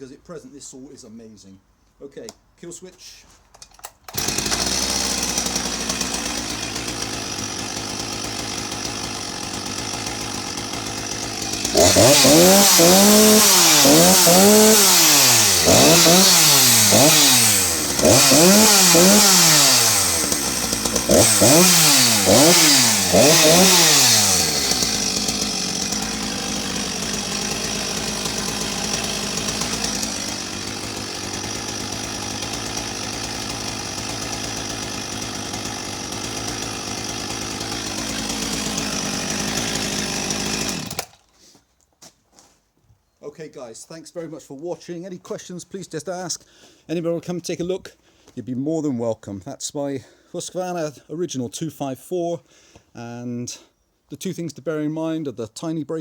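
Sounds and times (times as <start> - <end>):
chainsaw engine revving and idling: 4.1 - 41.2.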